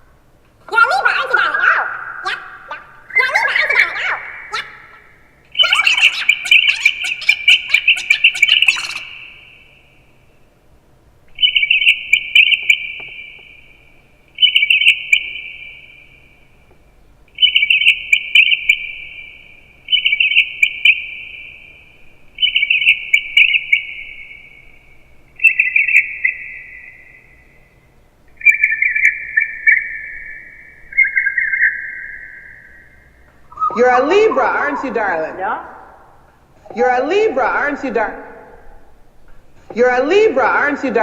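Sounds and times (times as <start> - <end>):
bird-like chirping trills: 1.9 - 10.5, 11.3 - 16.5, 17.3 - 37.0.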